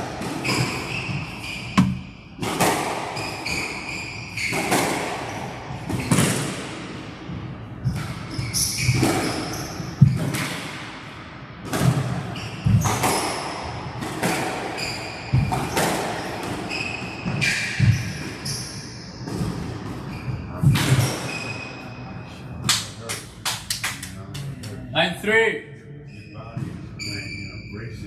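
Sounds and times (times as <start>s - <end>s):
squash ball struck by rackets: 0.0s - 3.7s, 4.4s - 7.1s, 7.8s - 11.0s, 11.6s - 18.4s, 19.2s - 21.4s
shoes squeaking on court floor: 0.3s - 6.4s, 7.8s - 10.3s, 14.2s - 22.2s, 26.1s - 28.0s.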